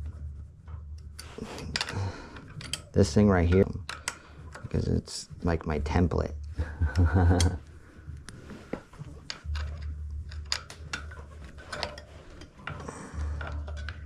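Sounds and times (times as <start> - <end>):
small parts and tools clinking: 1.0 - 4.8, 6.8 - 7.6, 9.2 - 14.0
low rumble: 9.4 - 11.8.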